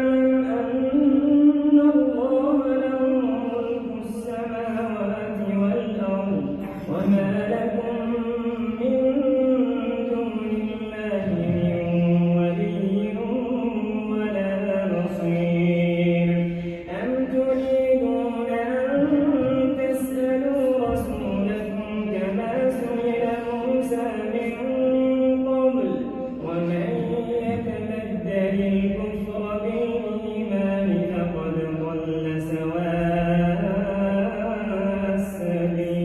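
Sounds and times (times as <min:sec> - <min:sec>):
man reciting melodically: 0:00.0 - 0:36.0.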